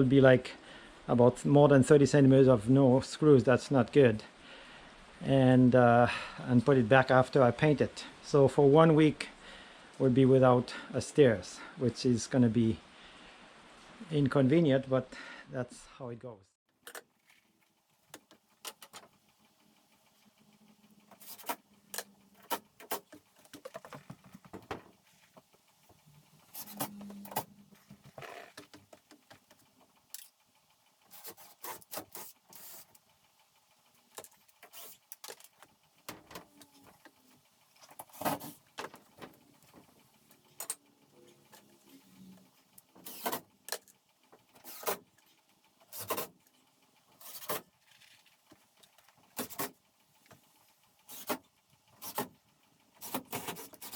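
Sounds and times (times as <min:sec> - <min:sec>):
clicks knocks and rattles of work: 0:21.1 - 0:30.3, 0:37.8 - 0:41.7, 0:47.2 - 0:50.4.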